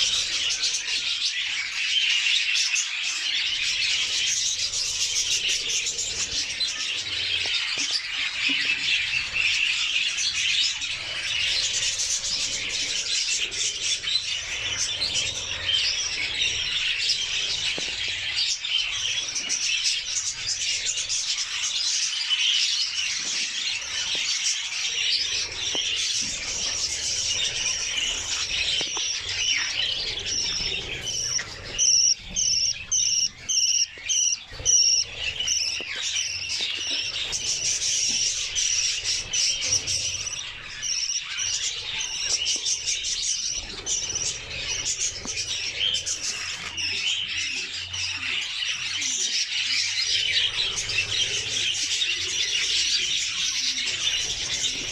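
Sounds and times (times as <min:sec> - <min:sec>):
budgerigars chattering and warbling: 0:00.0 - 0:54.9
loud repeated chirps: 0:31.8 - 0:35.7.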